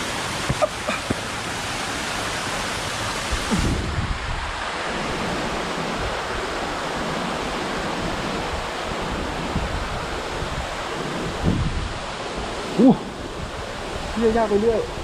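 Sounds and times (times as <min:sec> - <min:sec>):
waterfall roaring: 0:00.0 - 0:15.0
wind buffeting microphone: 0:03.2 - 0:15.0.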